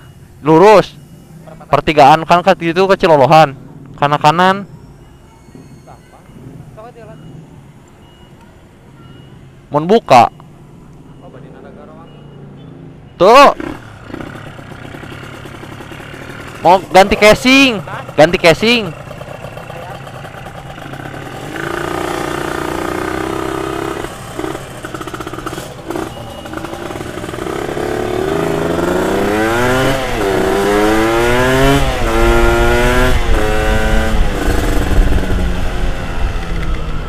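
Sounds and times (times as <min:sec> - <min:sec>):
motorcycle engine accelerating: 0:13.4 - 0:37.0.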